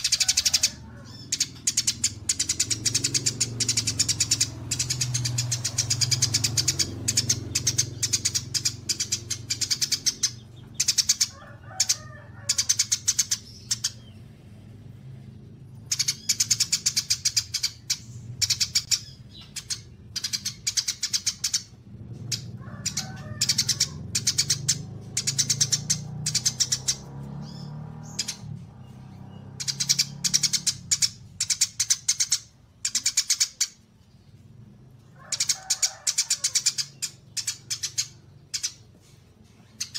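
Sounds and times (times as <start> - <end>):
low bird chirps: 0.0 - 39.9
songbirds trilling: 0.0 - 39.9.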